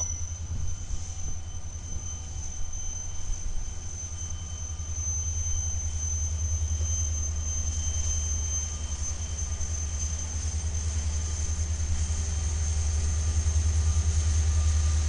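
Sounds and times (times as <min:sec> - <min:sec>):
high-pitched whine: 0:00.0 - 0:10.4.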